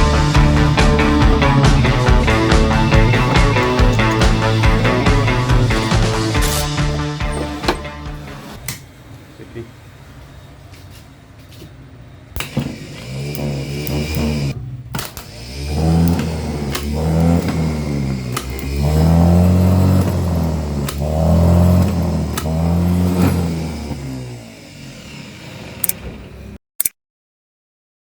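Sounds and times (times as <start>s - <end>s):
diesel lorry engine revving: 0.0s - 26.6s
sharp clicks: 12.4s - 18.9s, 25.8s - 26.0s.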